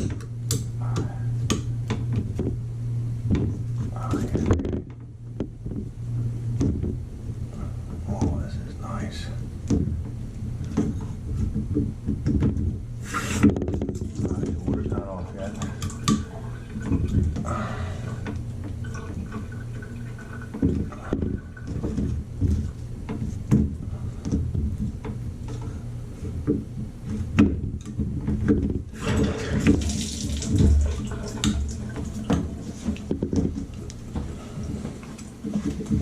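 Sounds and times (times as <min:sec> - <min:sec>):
faucet water rushing: 0:29.0 - 0:32.7.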